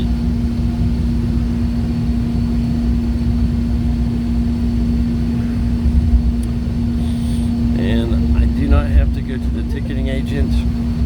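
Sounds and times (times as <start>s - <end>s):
train drive hum: 0.0s - 11.0s
low rumble: 4.2s - 11.0s.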